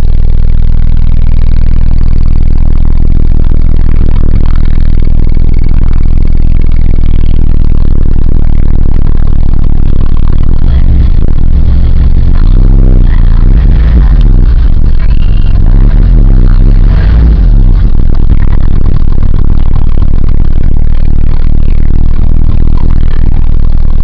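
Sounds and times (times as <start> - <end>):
pickup engine running loudly: 10.5 - 19.8.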